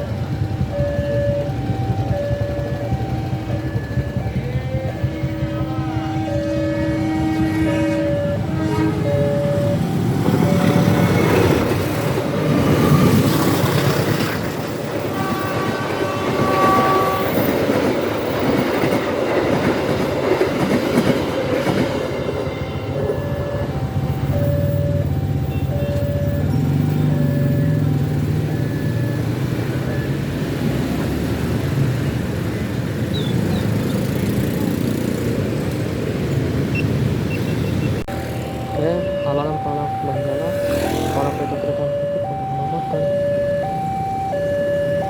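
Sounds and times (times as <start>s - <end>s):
crossing alarm two-tone signal: 0.0s - 30.6s, 36.7s - 45.0s
train horn: 5.6s - 11.5s, 15.0s - 17.7s, 21.4s - 23.8s
train wheels clacking on rails: 9.2s - 31.9s.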